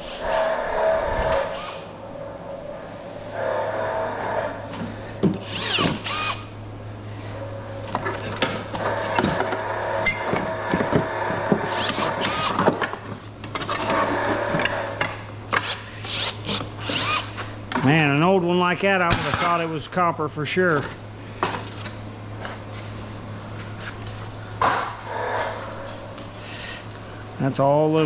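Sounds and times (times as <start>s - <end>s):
scraping squeals: 0.0s - 2.4s, 3.1s - 6.6s, 7.2s - 12.6s
power drill whining: 0.3s - 1.9s, 5.4s - 6.6s, 8.2s - 12.8s, 13.7s - 17.5s.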